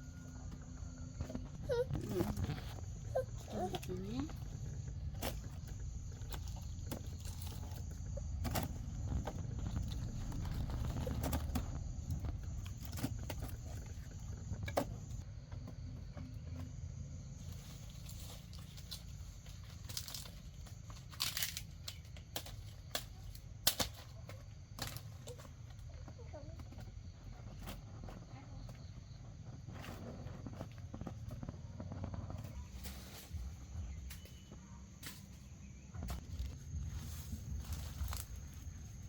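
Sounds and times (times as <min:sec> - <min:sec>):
low steady rumble: 0:00.0 - 0:15.5
rustling and crinkling: 0:00.0 - 0:39.0.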